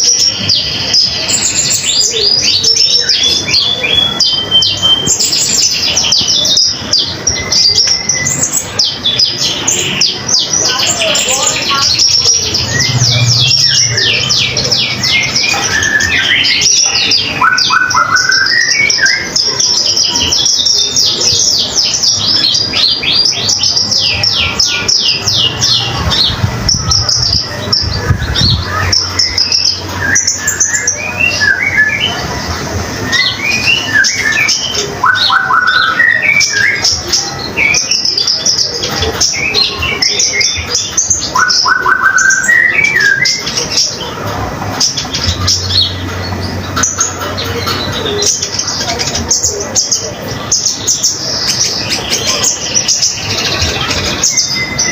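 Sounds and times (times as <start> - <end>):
songbird chirping and trilling: 0.0 - 54.9.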